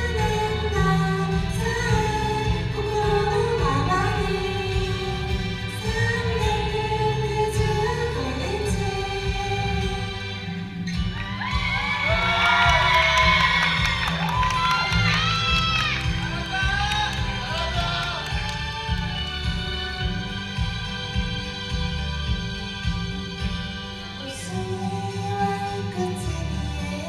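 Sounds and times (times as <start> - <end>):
instrumental accompaniment: 0.0 - 27.0
audience cheering and shrieking: 11.1 - 19.9.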